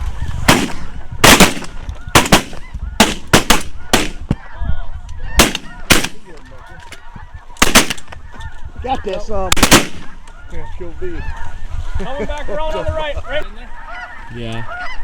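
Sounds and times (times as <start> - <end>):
geese honking: 0.0 - 15.0
shotgun shots: 0.5 - 4.4, 5.4 - 6.4, 7.6 - 8.1, 9.5 - 10.2.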